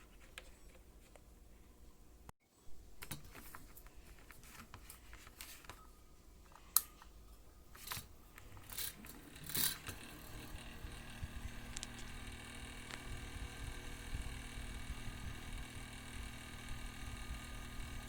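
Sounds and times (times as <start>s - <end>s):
small fan motor humming: 7.8s - 18.0s.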